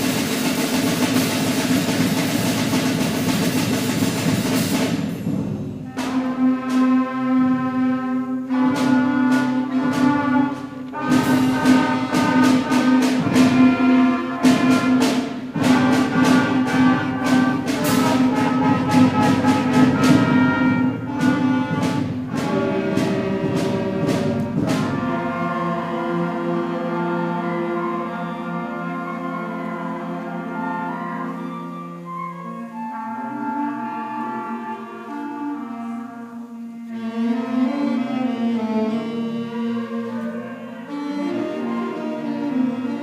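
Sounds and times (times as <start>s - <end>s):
percussion strikes: 0.0s - 33.8s
concert band playing: 0.0s - 43.0s.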